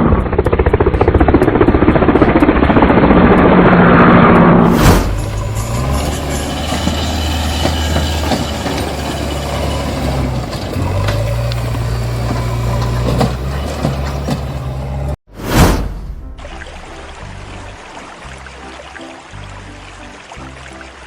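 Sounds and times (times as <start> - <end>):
vehicle engine running: 0.0 - 15.2.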